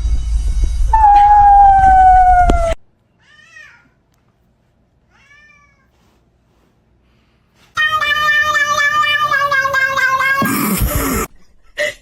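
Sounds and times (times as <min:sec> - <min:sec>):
cat meowing: 0:07.8 - 0:10.5.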